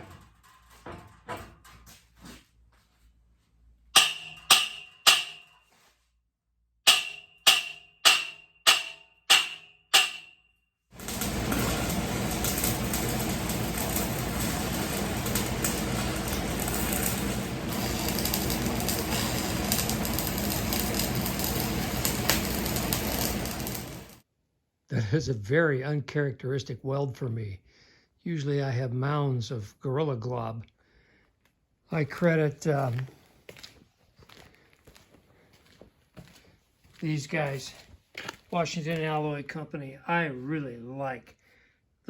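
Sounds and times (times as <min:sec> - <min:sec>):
hammer ringing on steel: 0:04.0 - 0:05.6, 0:06.9 - 0:10.6
welding arc crackling hiss: 0:11.0 - 0:24.2.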